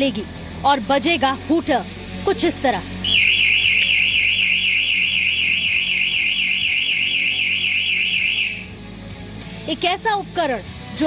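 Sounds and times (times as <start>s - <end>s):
warbling alarm siren: 3.0s - 8.7s.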